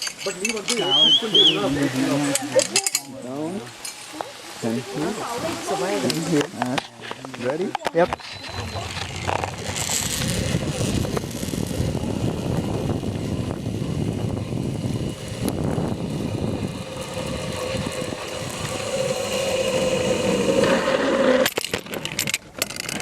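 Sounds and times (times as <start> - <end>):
zipline pulleys on steel cable: 0.0 - 23.0
whine: 0.7 - 22.0
wind on microphone: 8.1 - 21.0.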